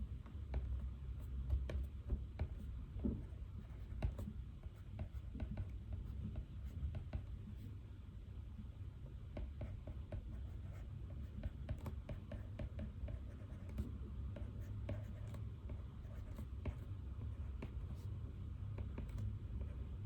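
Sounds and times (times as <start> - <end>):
low steady hum: 0.0 - 20.0
pen scratching on paper: 2.4 - 6.1, 9.6 - 18.1.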